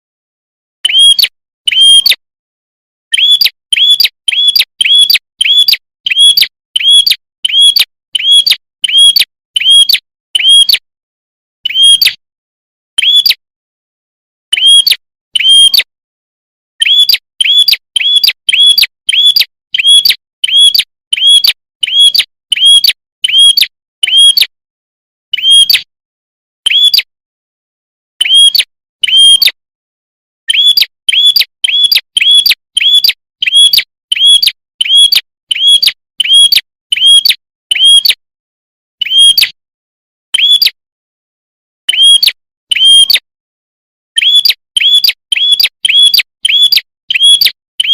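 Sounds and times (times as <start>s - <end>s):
bird chirping: 0.8s - 2.2s, 3.1s - 10.8s, 11.6s - 12.2s, 13.0s - 13.4s, 14.5s - 15.8s, 16.8s - 24.5s, 25.3s - 25.9s, 26.6s - 27.1s, 28.2s - 29.5s, 30.5s - 38.2s, 39.0s - 39.6s, 40.3s - 40.8s, 41.9s - 43.2s, 44.2s - 47.9s.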